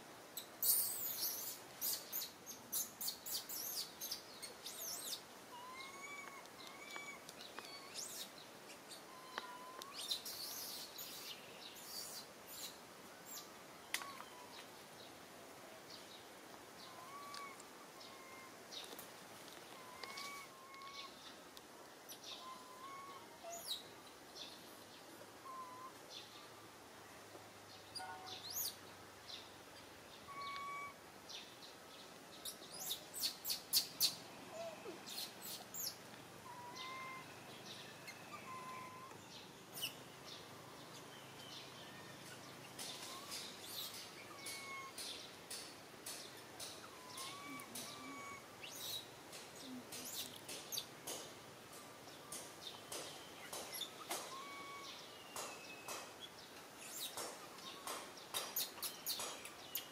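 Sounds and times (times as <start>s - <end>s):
birds chirping: 0.4s - 15.2s, 22.0s - 59.9s
whistled bird notes: 25.4s - 26.0s, 30.3s - 31.0s, 36.5s - 39.2s, 42.9s - 45.1s, 46.9s - 49.0s, 52.9s - 56.0s.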